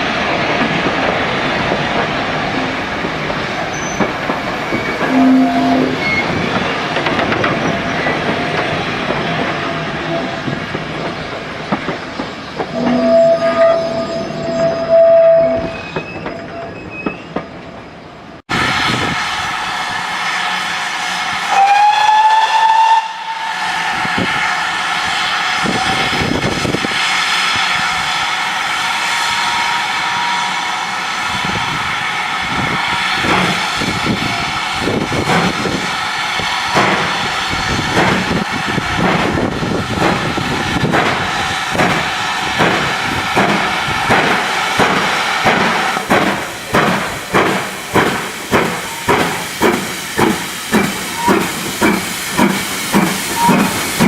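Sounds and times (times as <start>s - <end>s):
steam locomotive whistle: 4.7s - 6.4s, 12.7s - 16.6s, 18.8s - 24.4s, 29.0s - 31.0s, 53.3s - 53.8s
steam hiss: 18.5s - 54.0s
locomotive exhaust puffing: 33.3s - 54.0s.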